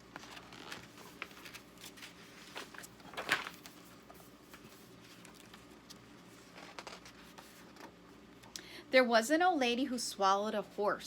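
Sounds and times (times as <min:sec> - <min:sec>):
book page turning: 0:00.1 - 0:07.9.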